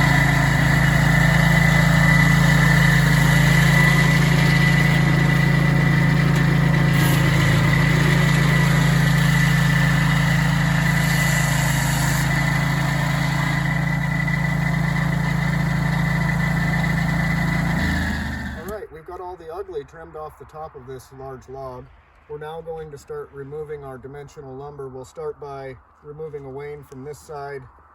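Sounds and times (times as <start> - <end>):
high saw whine: 0.0 - 18.8
saw cutting through log: 0.0 - 18.8
sawmill engine running: 0.0 - 18.8.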